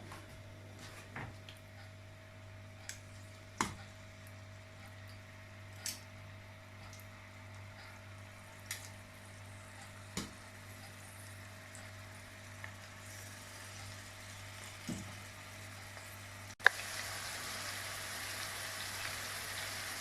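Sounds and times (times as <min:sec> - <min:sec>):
steady low hum: 0:00.0 - 0:20.0
chicken sizzling in hot oil: 0:11.0 - 0:20.0.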